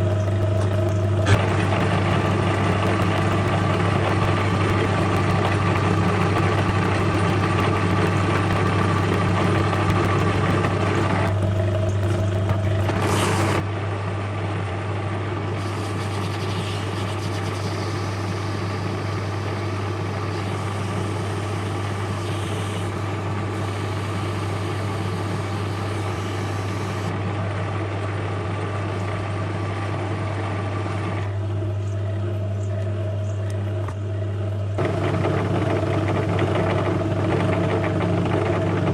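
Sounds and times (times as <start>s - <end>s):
metal lathe humming: 0.0s - 13.6s, 15.7s - 38.9s.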